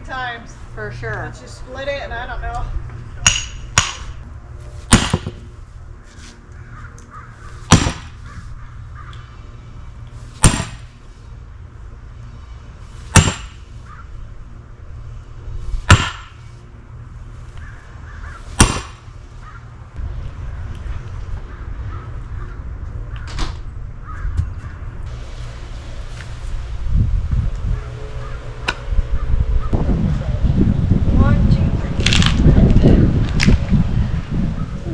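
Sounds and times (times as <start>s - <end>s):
sledgehammer striking steel wedge: 3.2s - 4.2s, 4.9s - 5.4s, 7.7s - 8.2s, 10.4s - 10.9s, 13.1s - 13.7s, 15.8s - 16.5s, 18.6s - 19.1s.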